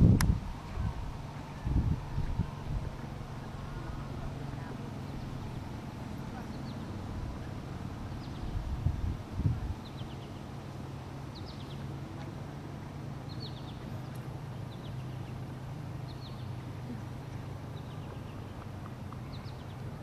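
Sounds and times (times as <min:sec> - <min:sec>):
steady low hum: 0:00.0 - 0:20.0
small bird chirping: 0:17.7 - 0:20.0.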